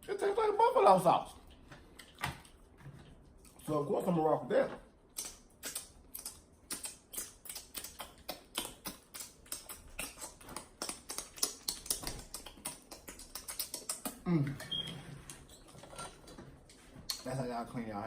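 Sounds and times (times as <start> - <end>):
wet finger licking smacks: 5.1 - 14.2.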